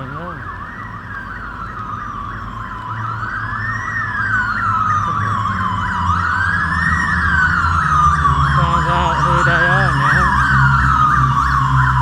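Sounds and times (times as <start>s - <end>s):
siren fast yelp: 0.0s - 12.0s
siren slow wail: 0.0s - 12.0s
low vehicle rumble: 4.7s - 12.0s.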